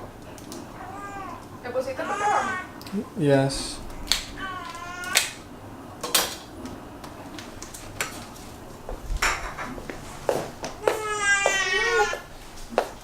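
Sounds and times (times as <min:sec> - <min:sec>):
dishes and cutlery clinking: 0:09.2 - 0:10.0.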